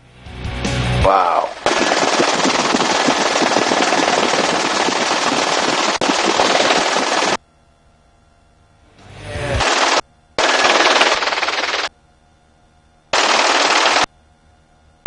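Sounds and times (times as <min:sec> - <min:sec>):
machine-gun fire: 0:01.4 - 0:07.4, 0:09.6 - 0:11.9, 0:13.2 - 0:14.1.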